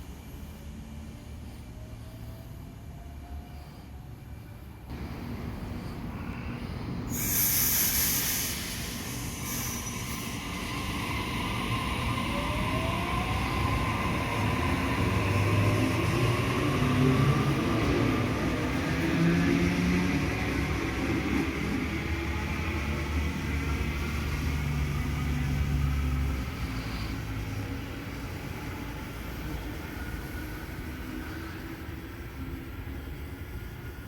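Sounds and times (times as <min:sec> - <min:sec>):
electric train on rails: 0:00.0 - 0:34.0
loud burst of hiss: 0:07.1 - 0:10.7.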